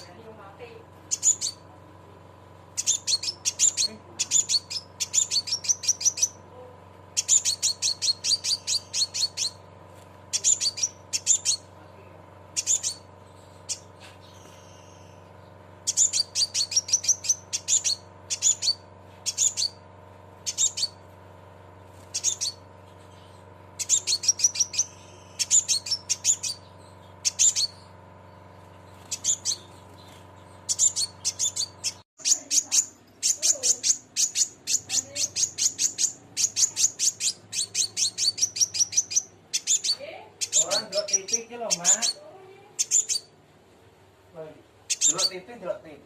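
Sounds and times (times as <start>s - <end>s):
bird chirping calls: 0.0s - 1.8s, 2.6s - 21.2s, 21.9s - 43.5s, 44.4s - 46.0s
steady hum: 0.0s - 46.0s.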